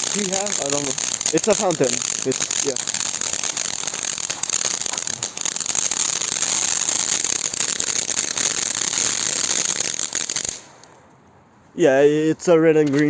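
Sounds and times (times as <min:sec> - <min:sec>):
firework fountain hissing: 0:00.0 - 0:10.9
firework crackling: 0:00.0 - 0:11.0.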